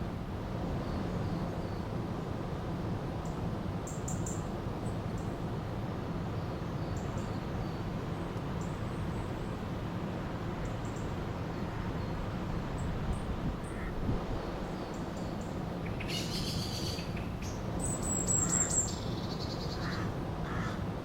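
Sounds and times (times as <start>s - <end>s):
small birds chirping: 14.6s - 20.1s.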